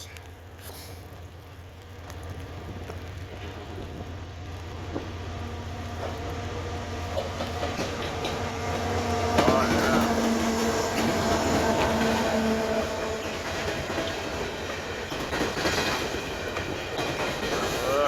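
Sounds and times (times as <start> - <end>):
train rolling past: 0.0 - 18.0
wheels clicking over rails: 7.0 - 18.0.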